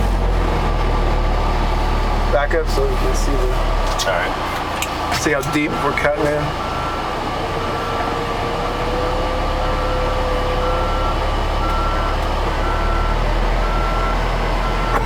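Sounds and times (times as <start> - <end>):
backup alarm beeping: 5.4 - 7.1, 9.7 - 15.0.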